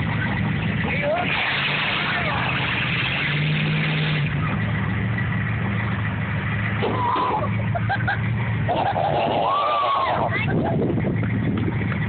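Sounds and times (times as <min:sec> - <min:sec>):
truck engine running: 0:00.0 - 0:12.0
people shouting: 0:06.8 - 0:07.5, 0:09.2 - 0:10.4.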